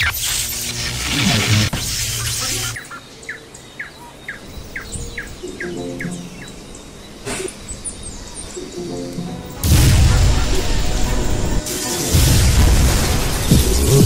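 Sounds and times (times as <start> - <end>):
loud rushing noise: 9.5 - 14.0.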